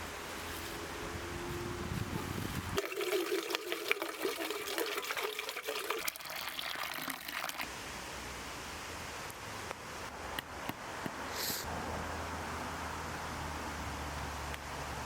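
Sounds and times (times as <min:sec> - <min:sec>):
liquid pouring and splashing: 0:02.8 - 0:07.7
steady background hiss: 0:06.4 - 0:15.0.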